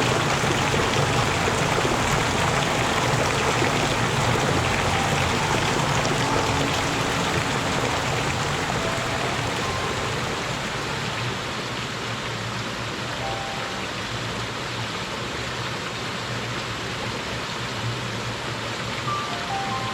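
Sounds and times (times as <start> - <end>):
water running over rocks: 0.0 - 13.1.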